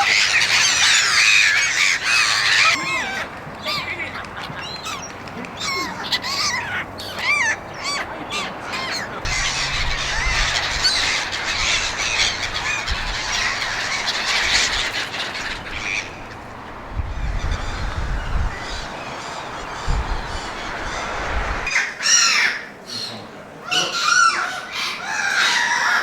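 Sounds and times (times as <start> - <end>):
gulls squawking: 0.0 - 23.1
low rumble: 9.2 - 14.0.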